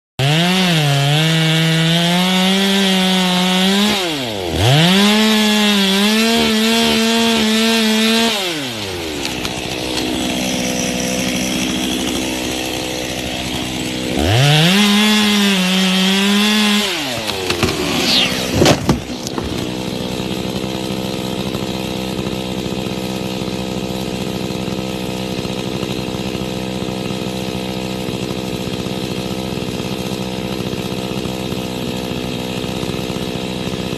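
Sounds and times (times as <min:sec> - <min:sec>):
chainsaw cutting: 0:00.2 - 0:33.9
sharp cracks and knocks: 0:08.8 - 0:10.9, 0:17.0 - 0:19.9.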